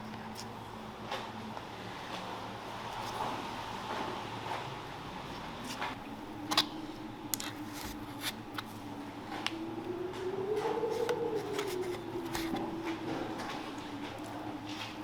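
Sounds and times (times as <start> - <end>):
pitched hum: 6.0 - 15.0.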